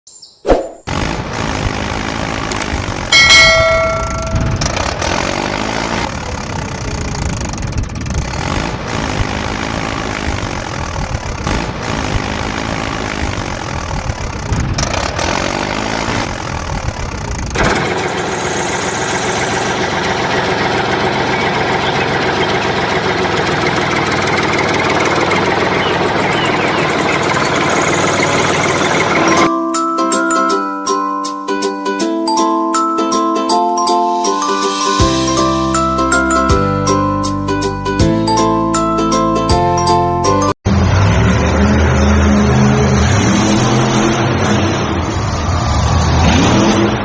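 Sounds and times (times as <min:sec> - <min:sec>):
small engine running unevenly: 0:00.9 - 0:29.5.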